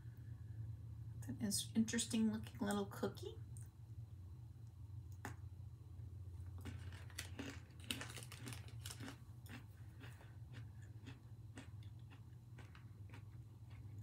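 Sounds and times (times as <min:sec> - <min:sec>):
cookie being chewed: 0:06.3 - 0:14.0.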